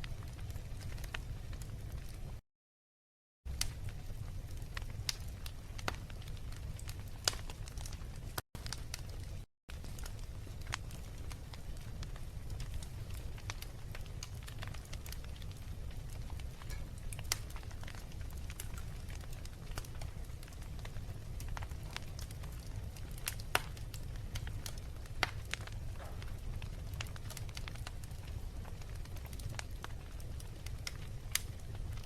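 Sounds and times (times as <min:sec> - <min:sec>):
low rumble of fire: 0:00.0 - 0:02.4, 0:03.5 - 0:32.0
wood fire crackling and popping: 0:00.0 - 0:02.4, 0:03.5 - 0:32.0.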